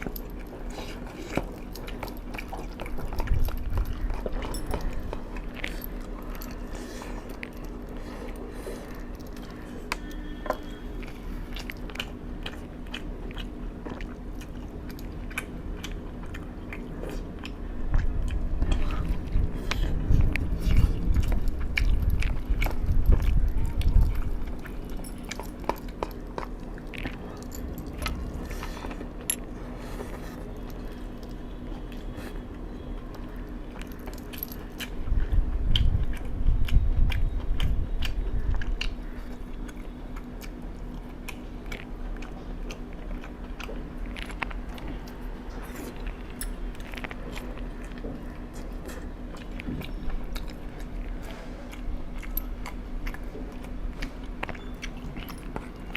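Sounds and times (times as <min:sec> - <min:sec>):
faint steady hum: 0:00.0 - 0:55.9
person chewing crunchy food: 0:00.0 - 0:55.9.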